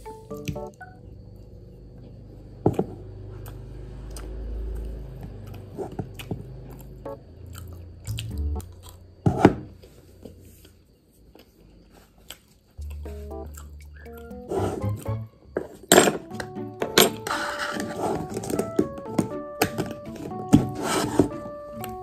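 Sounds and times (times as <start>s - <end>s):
chewing soft food: 3.3s - 9.1s, 10.6s - 14.4s.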